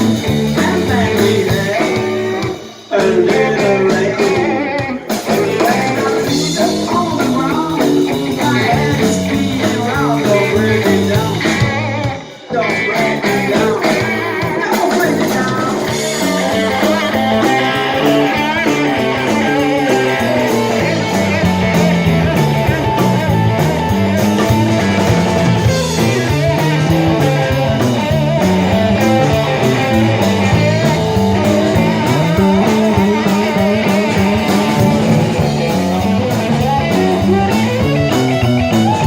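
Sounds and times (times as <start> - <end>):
bass line: 0.0 - 39.0
electric guitar: 0.0 - 39.0
steady drum beat: 0.0 - 39.0.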